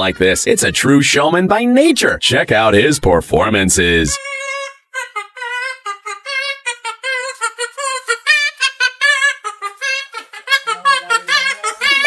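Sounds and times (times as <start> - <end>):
cockatoo vocalizing: 4.1 - 12.0.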